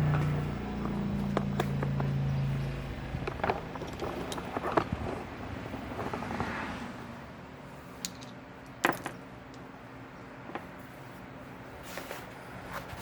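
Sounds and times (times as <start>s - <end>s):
tools clicking and knocking: 3.2s - 6.4s, 8.0s - 9.7s.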